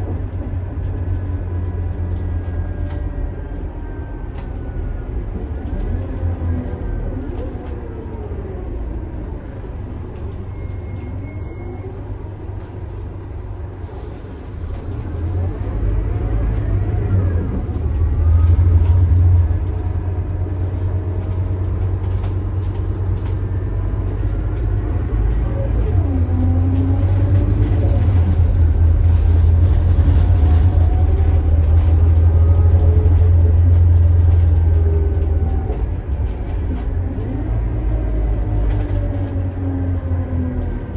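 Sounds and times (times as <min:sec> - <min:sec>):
bus diesel engine running: 0:00.0 - 0:40.9.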